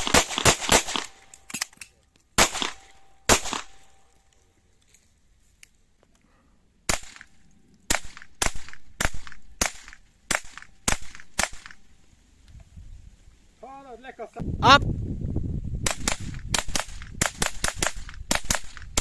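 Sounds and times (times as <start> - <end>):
rapid rifle shots: 0.0 - 1.2, 2.4 - 3.8, 6.9 - 7.3, 7.9 - 11.8, 15.9 - 19.0.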